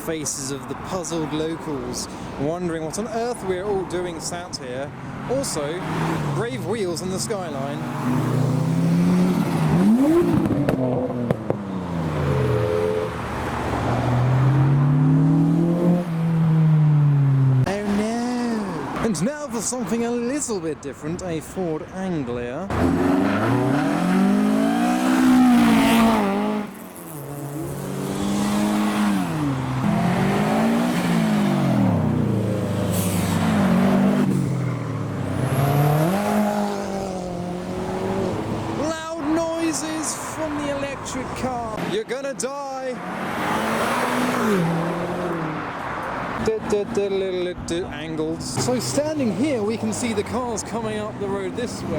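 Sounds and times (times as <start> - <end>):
car engines revving: 0.0 - 20.4, 22.5 - 51.9
car engine running through gears: 22.7 - 38.8.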